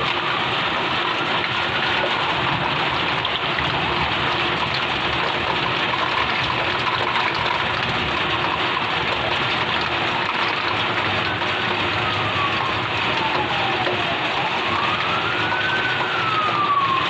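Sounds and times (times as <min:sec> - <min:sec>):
faint siren wailing: 0:00.0 - 0:17.0
fire truck engines running: 0:00.0 - 0:17.0
heavy rain pouring: 0:00.0 - 0:17.0.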